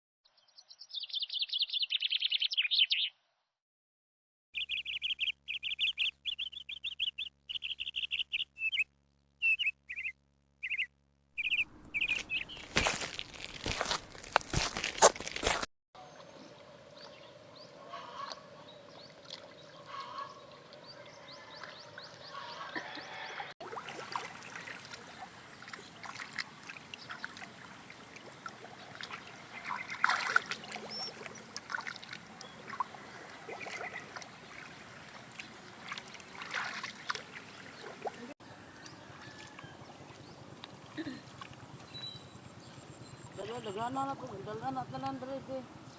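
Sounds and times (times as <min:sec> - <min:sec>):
short calls: 0:16.1 - 0:38.3.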